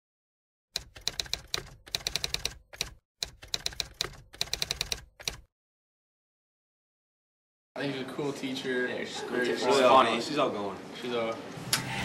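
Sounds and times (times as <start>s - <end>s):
typewriter keys clacking: 0.8s - 5.5s.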